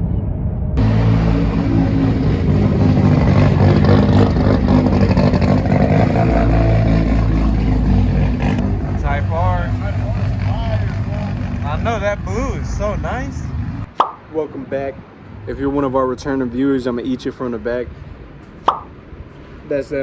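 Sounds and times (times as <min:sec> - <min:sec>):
car engine and exhaust running: 0:00.8 - 0:13.9.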